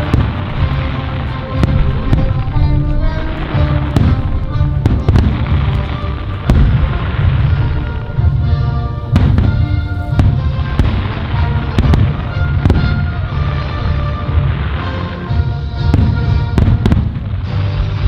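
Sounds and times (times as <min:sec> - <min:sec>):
low rumble: 0:00.0 - 0:14.4
fireworks bursting with bangs: 0:00.0 - 0:18.0
music playing: 0:00.0 - 0:18.0.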